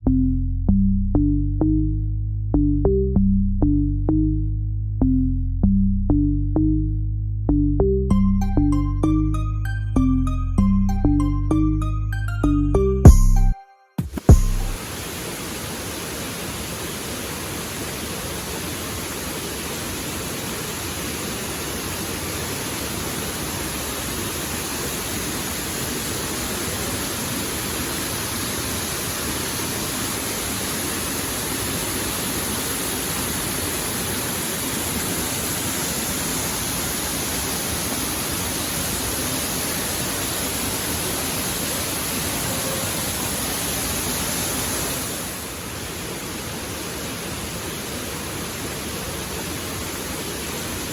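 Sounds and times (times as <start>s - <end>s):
waterfall rushing: 14.2s - 50.9s.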